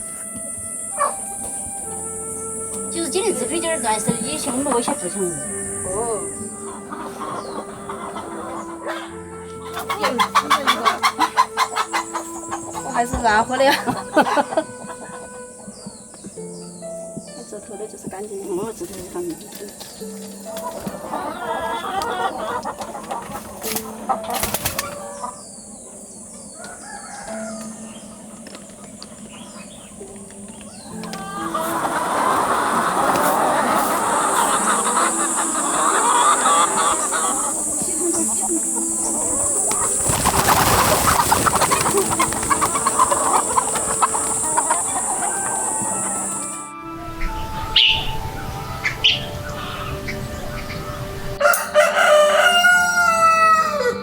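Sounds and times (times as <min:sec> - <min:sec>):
high-pitched hiss: 0:00.0 - 0:20.6, 0:28.9 - 0:51.4
chickens clucking: 0:00.0 - 0:54.0.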